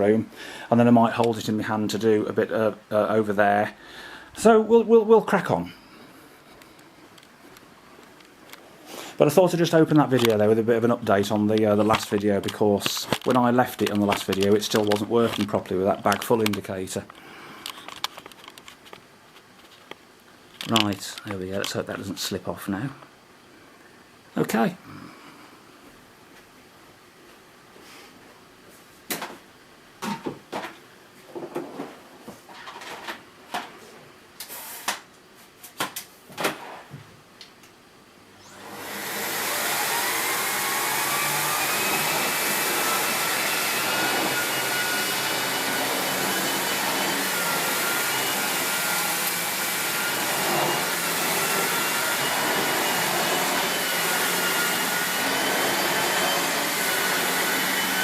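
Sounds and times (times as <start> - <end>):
vacuum cleaner motor whine: 38.4 - 58.0.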